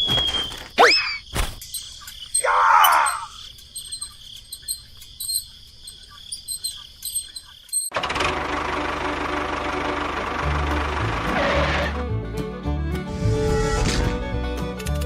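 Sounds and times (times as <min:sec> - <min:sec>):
insects chirring: 0:00.0 - 0:08.0.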